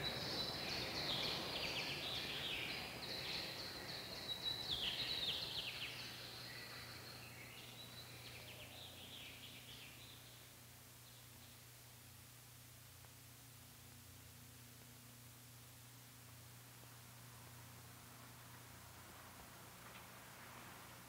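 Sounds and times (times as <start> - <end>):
birds chirping and trilling: 0.0 - 11.6
background hiss: 0.0 - 21.0
faint steady hum: 0.0 - 21.0.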